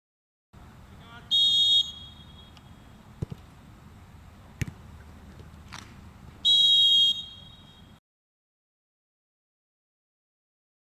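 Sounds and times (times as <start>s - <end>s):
referee's whistle blast: 1.1s - 2.7s, 6.4s - 8.0s
short dull thumps: 3.2s - 3.5s, 4.6s - 6.0s.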